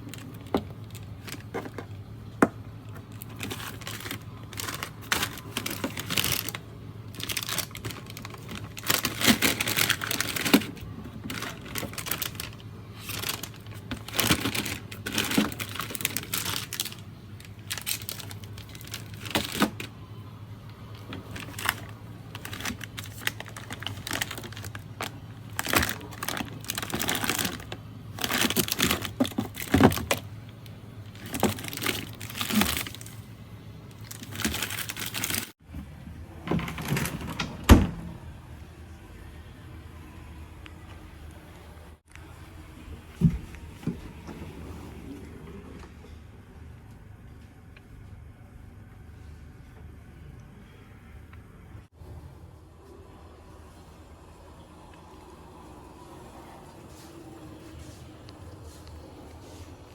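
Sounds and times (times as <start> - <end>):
packaging crinkling and rustling: 0.0 - 35.6
steady low hum: 0.0 - 37.0.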